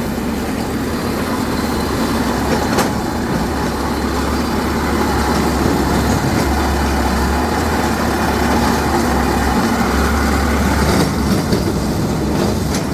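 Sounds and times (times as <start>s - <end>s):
drilling rig engine running: 0.0s - 12.9s.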